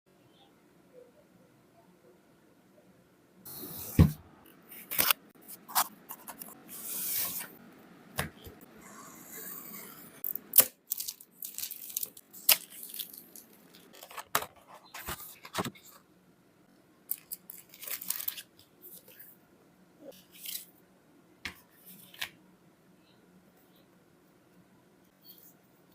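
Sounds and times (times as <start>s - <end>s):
packaging rustling and tearing: 10.9s - 15.8s, 17.1s - 18.5s.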